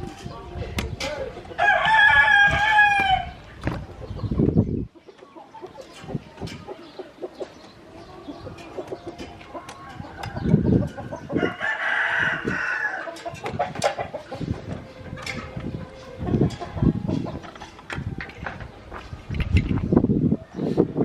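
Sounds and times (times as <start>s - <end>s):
rooster crowing: 1.6s - 3.4s, 9.8s - 13.1s.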